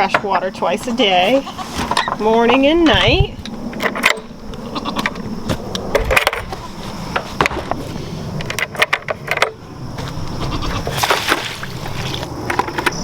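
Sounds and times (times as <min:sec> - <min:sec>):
buckets clanking and rattling: 0:00.0 - 0:04.4, 0:08.4 - 0:10.2, 0:10.8 - 0:13.0.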